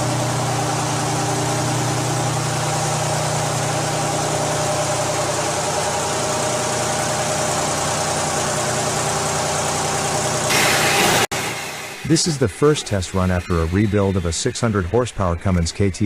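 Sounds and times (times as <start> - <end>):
diesel engine idling: 0.0 - 10.5.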